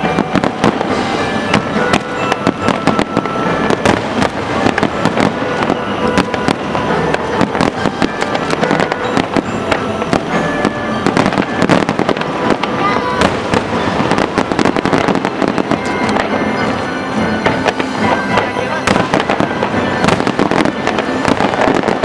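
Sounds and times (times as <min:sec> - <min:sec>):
fireworks bangs and crackles: 0:00.0 - 0:22.0
music playing: 0:00.0 - 0:22.0.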